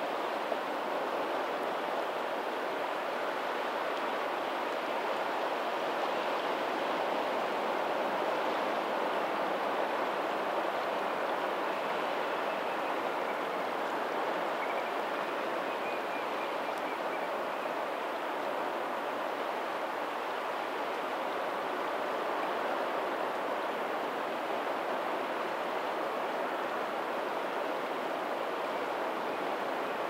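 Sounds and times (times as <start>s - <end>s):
faint ocean surf: 0.0s - 30.0s.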